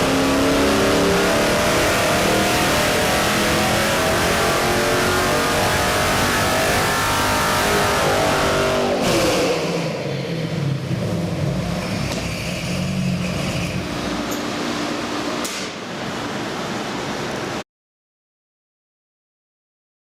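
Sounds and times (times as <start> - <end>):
engine revving and idling: 0.0 - 15.8.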